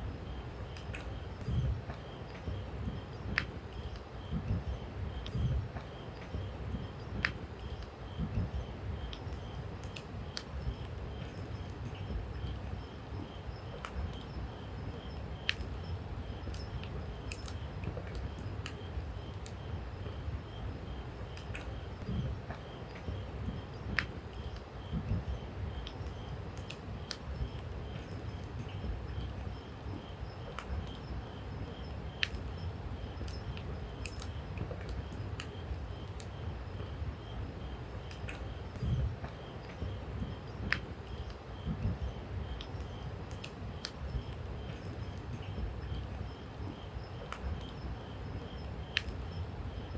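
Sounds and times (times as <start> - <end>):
low fire rumble: 0.0 - 49.9
campfire crackling and popping: 25.3 - 28.3, 32.0 - 36.4.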